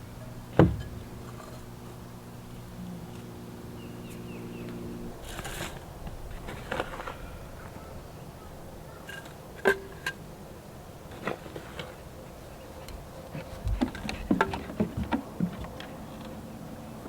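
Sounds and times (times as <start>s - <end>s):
dull thump: 0.5s - 1.6s
pots and tools clicking: 9.1s - 10.2s.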